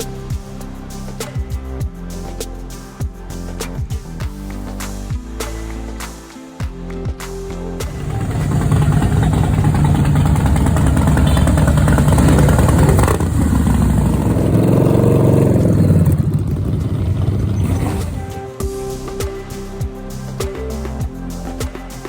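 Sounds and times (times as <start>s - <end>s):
motorcycle engines running loudly: 7.9s - 18.3s.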